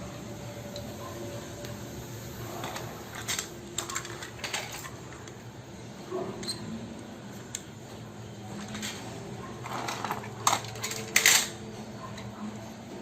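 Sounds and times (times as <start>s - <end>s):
toy vehicles clicking: 2.4s - 5.4s, 8.5s - 12.4s.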